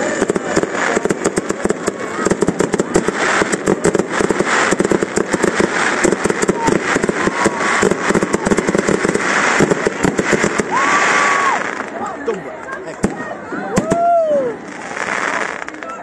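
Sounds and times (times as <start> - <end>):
firework whistle: 0.0 - 11.8
fireworks crackling and banging: 0.0 - 16.0.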